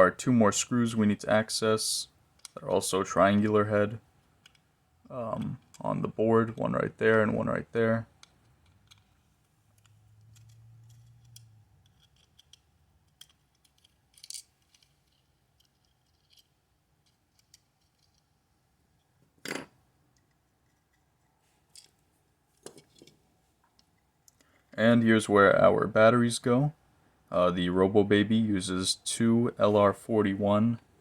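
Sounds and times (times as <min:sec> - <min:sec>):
small screwdriver clicks and scrapes: 0:08.2 - 0:18.3.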